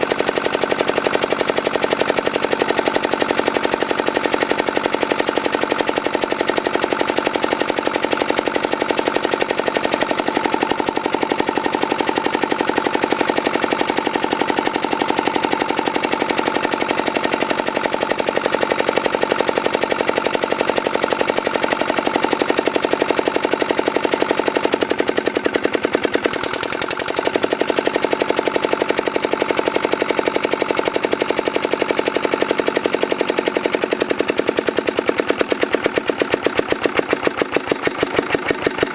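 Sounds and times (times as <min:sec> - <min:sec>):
diesel engine running: 0:09.1 - 0:19.8, 0:20.8 - 0:38.9.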